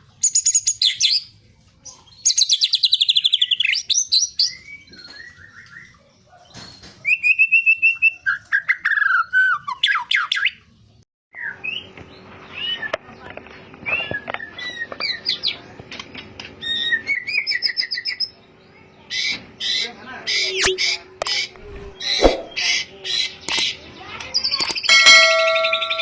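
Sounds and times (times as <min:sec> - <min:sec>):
songbird singing: 0:00.0 - 0:15.8
steady low hum: 0:18.3 - 0:24.0.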